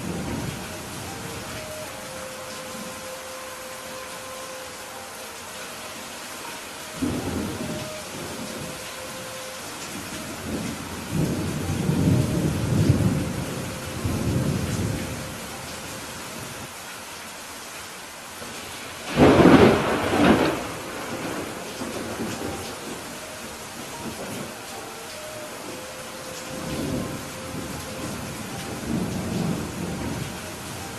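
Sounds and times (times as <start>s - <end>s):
steady rain: 0.0s - 30.9s
rolling thunder: 7.0s - 15.5s, 19.1s - 23.2s
sharp thunderclap: 19.1s - 22.3s.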